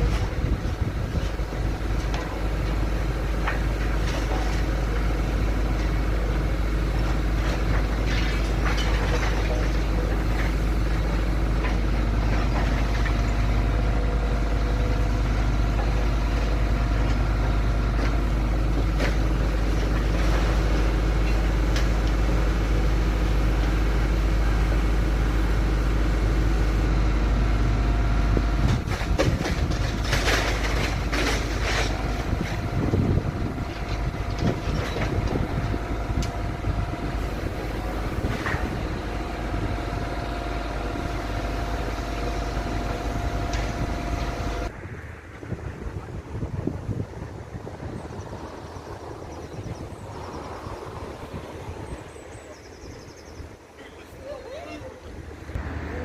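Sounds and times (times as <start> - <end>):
heavy engine rumbling: 0.0 - 56.0
knocks and clatter: 7.1 - 10.6, 28.6 - 36.4.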